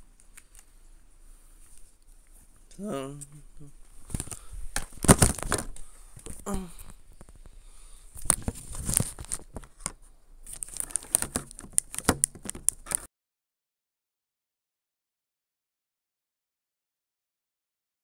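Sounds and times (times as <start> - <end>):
handling clicks and rustling: 3.8 - 6.4, 8.2 - 13.1.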